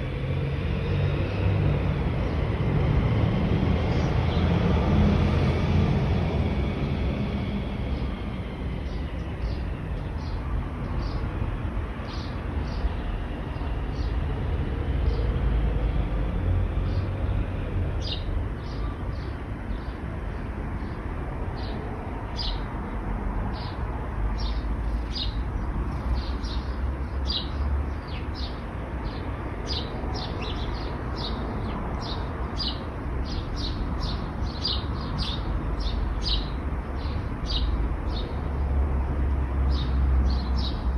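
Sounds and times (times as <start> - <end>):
road traffic rumble: 0.0 - 40.9
small bird chirping: 24.4 - 31.4.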